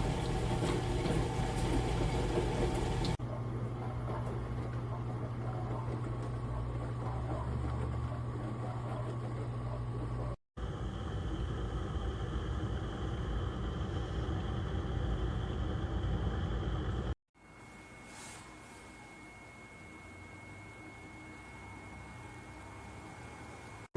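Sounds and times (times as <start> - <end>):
dishwasher running: 0.0 - 10.4
faint high whine: 17.4 - 23.9.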